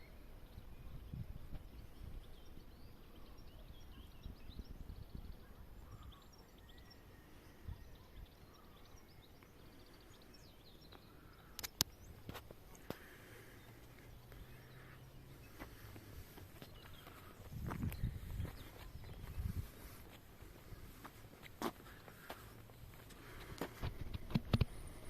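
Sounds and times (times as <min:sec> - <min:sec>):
small birds chirping: 0:00.0 - 0:25.0
sharp clicks: 0:11.5 - 0:13.0.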